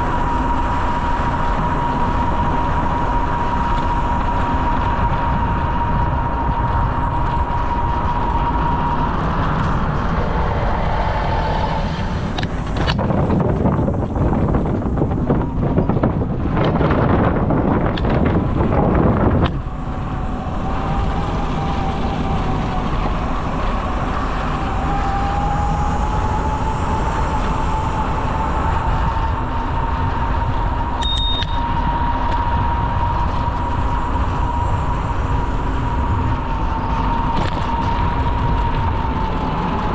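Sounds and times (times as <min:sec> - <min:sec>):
bicycle rolling and wind noise: 0:00.0 - 0:39.9
thin whine: 0:00.0 - 0:39.9
bicycle knocks and rattles: 0:37.3 - 0:37.7.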